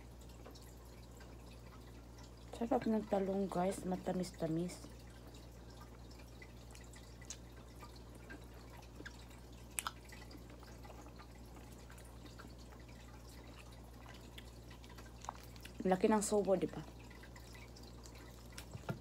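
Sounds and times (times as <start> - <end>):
faint low hum: 0.0 - 19.0
soft chewing: 4.8 - 19.0
wet mouth clicks: 9.0 - 10.0.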